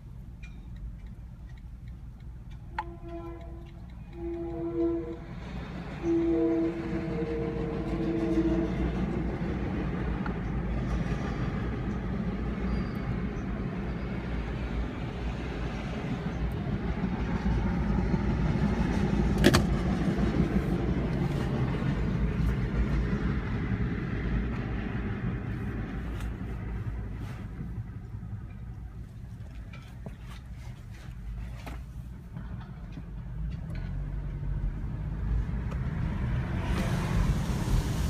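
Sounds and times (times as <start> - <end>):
train rolling past rumble: 2.4 - 38.0
train horn: 2.7 - 9.4.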